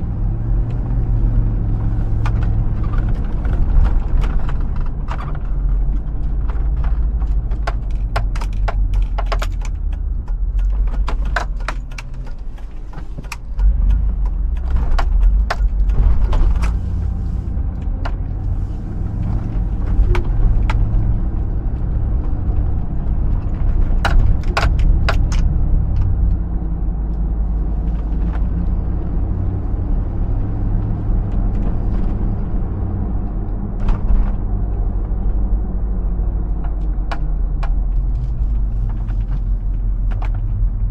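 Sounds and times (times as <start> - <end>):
engine rumbling while driving: 0.0 - 40.9
sharp clicks and rattles: 0.4 - 18.5, 19.2 - 40.9.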